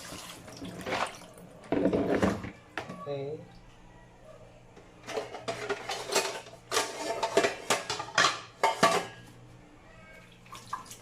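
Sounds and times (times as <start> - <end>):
dishes and utensils clattering: 0.6 - 3.1, 5.0 - 9.4.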